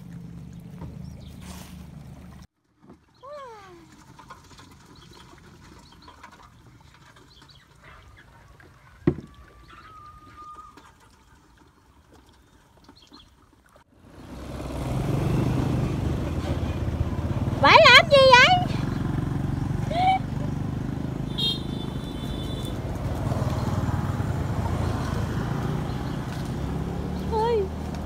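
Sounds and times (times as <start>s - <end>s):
bird calls: 7.2s - 11.0s.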